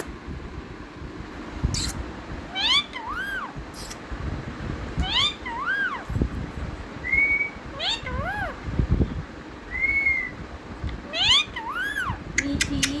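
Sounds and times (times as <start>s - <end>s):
parrot calling: 1.8s - 4.0s, 5.0s - 6.1s, 7.2s - 8.6s, 11.0s - 13.0s
parrot whistles: 2.6s - 4.0s, 5.0s - 6.1s, 7.0s - 8.6s, 9.7s - 10.4s, 11.2s - 12.2s.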